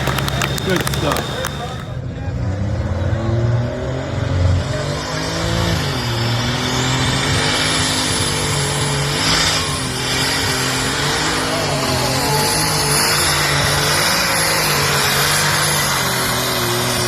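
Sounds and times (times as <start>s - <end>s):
tractor engine at high revs: 0.0s - 2.0s.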